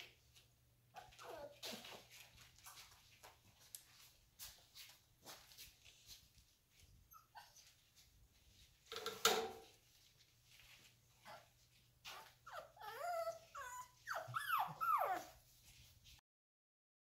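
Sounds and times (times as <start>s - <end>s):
puppies whining and yelping: 0.9s - 2.2s, 6.8s - 8.1s, 11.2s - 15.6s.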